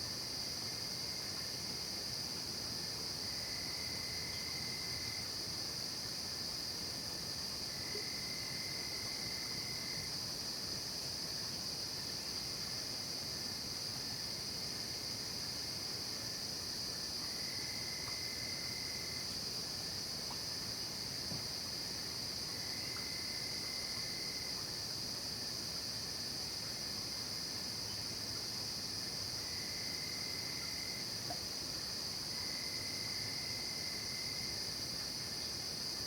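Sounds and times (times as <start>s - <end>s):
lower insect trill: 0.0s - 6.7s, 7.4s - 10.2s, 10.8s - 36.0s
crickets chirping: 0.0s - 36.0s.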